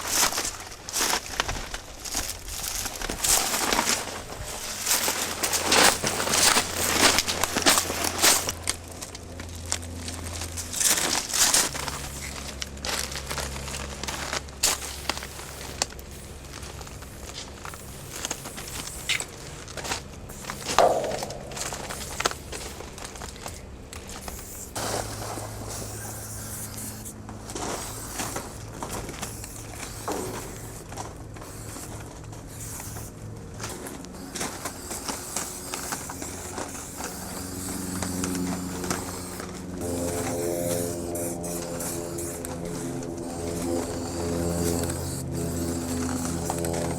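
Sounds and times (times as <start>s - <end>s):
handling noises: 0.0s - 26.0s
steady low hum: 0.0s - 46.9s
footsteps: 16.6s - 25.8s.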